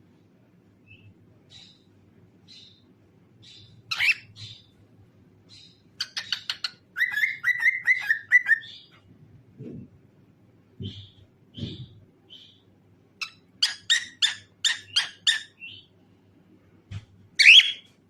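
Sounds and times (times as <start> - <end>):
cockatiel chirping and whistling: 3.9 - 4.6, 6.0 - 8.8, 17.4 - 17.9.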